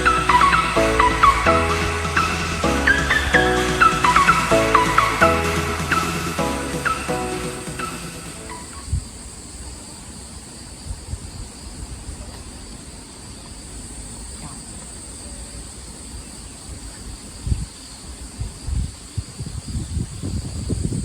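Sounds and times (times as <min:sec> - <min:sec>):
crickets trilling: 0:08.5 - 0:21.0
wind rumbling on microphone: 0:10.8 - 0:12.3, 0:16.7 - 0:21.0.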